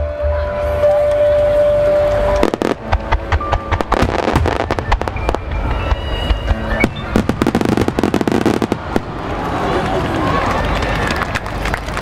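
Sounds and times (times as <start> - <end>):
music playing: 0.0 - 11.6
fireworks bursting: 2.2 - 9.8.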